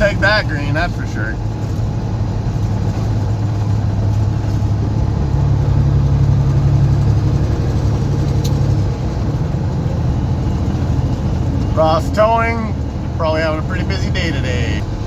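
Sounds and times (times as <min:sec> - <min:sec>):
truck diesel engine: 0:00.0 - 0:15.0.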